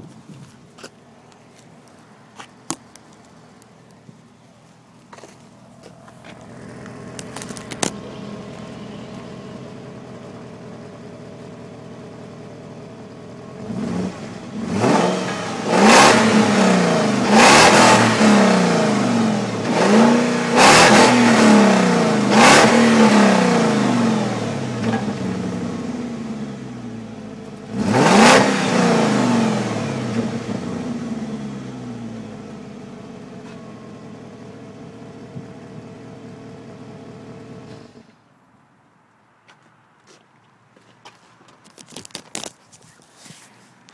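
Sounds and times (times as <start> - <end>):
car engine idling and revving: 0.0 - 38.3.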